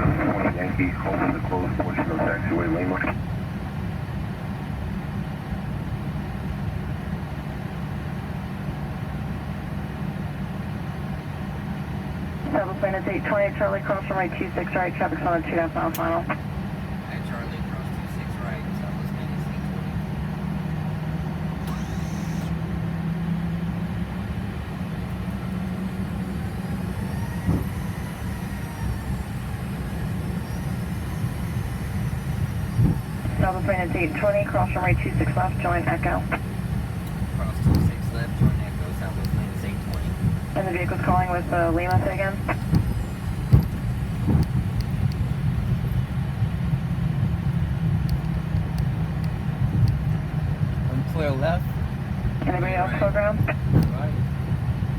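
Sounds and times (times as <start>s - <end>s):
jet engines humming: 0.0s - 54.9s
faint high whine: 21.6s - 22.6s, 25.3s - 46.0s.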